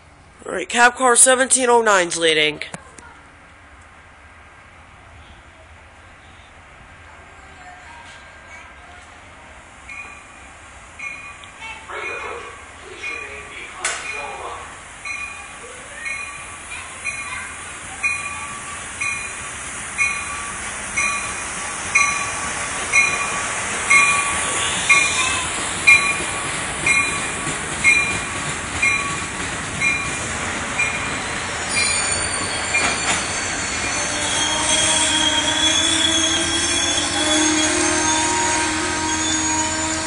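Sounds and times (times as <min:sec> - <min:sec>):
rumble of train wheels: 0:02.8 - 0:40.0
train bell ringing: 0:09.8 - 0:40.0
brake and wheel squeal: 0:31.6 - 0:40.0.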